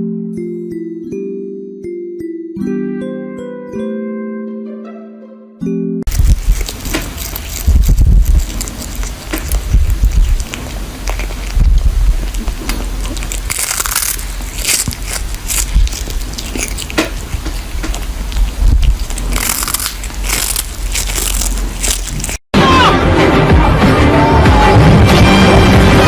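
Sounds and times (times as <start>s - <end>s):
steady low rumble: 6.1s - 22.4s
crunching crackling noises: 6.1s - 22.5s.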